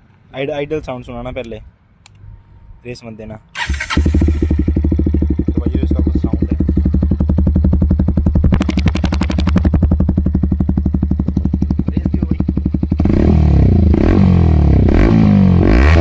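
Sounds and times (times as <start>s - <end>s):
motorcycle engine idling and revving: 3.6s - 16.0s.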